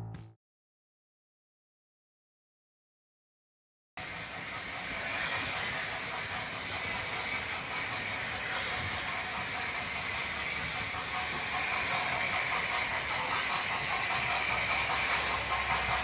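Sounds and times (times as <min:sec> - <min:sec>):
model train whirring: 0:04.0 - 0:16.0.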